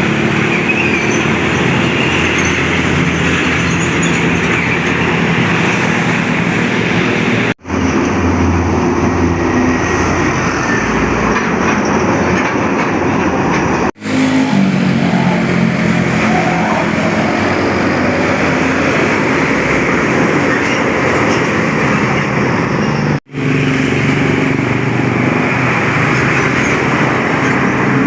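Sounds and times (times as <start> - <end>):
heavy trucks on a highway: 0.0 - 28.0.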